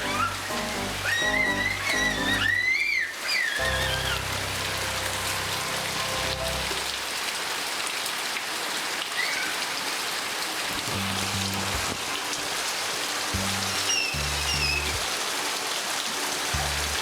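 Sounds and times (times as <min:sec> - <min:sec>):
background music: 0:00.0 - 0:02.6, 0:03.6 - 0:07.0, 0:10.9 - 0:17.0
heavy rain hissing: 0:00.0 - 0:17.0.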